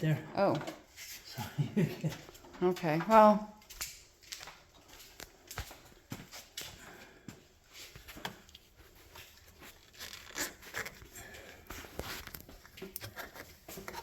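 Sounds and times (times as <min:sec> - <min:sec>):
wiring rustling: 0:07.8 - 0:14.0.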